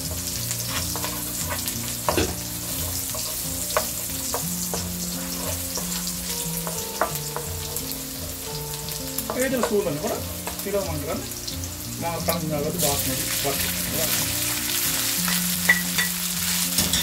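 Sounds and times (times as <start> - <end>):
garlic sizzling in hot oil: 0.0 - 17.0
wooden spoon scraping a pan: 0.1 - 7.5.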